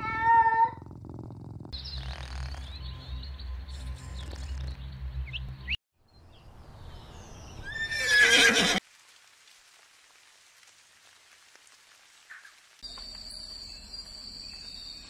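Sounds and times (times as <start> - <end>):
horse whinnying: 7.7 - 8.8.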